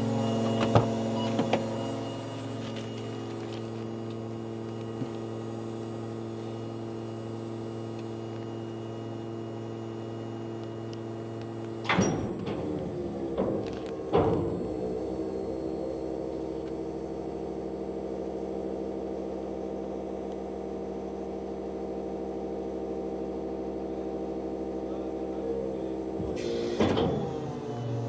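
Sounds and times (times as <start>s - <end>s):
hydraulic machine hum: 0.0s - 28.0s
metal clunk: 11.8s - 15.2s.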